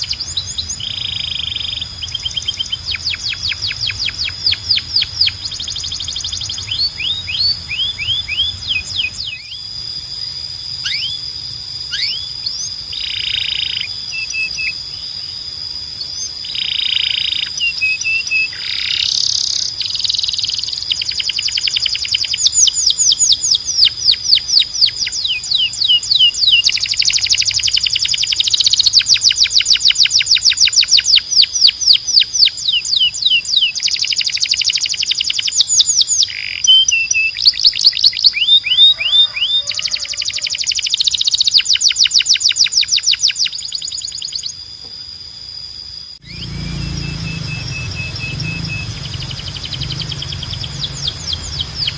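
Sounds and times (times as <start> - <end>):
canary singing: 0.0 - 44.6, 46.2 - 51.9.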